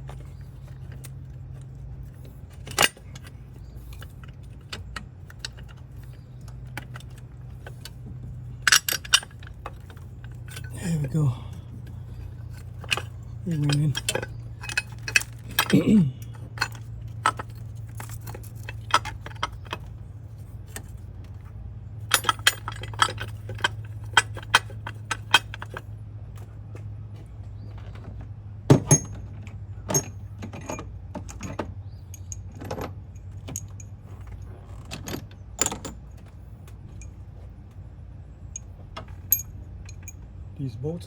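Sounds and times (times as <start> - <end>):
metal bolts and tools clinking: 0.0 - 21.0, 22.0 - 25.9, 28.7 - 37.5, 38.4 - 40.3
steady low hum: 0.0 - 30.4.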